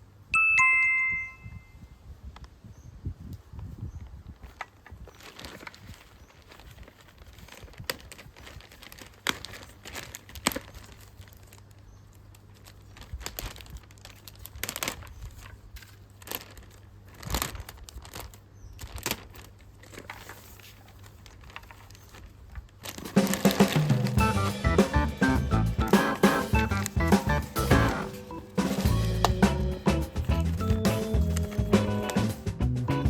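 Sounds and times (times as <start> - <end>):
crinkling and crackling: 3.3 - 24.2.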